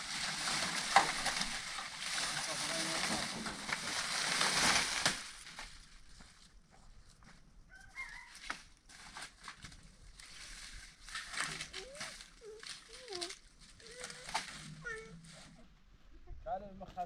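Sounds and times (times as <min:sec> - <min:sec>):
chicken calling: 0:07.7 - 0:08.4.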